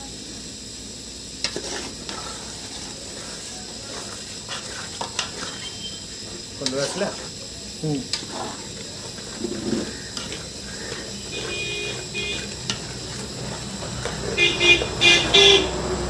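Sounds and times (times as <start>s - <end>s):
cooking pot sizzling: 0.0s - 16.0s
vehicle engine hum: 9.9s - 16.0s
vehicle horn tooting: 11.2s - 12.8s, 14.2s - 16.0s.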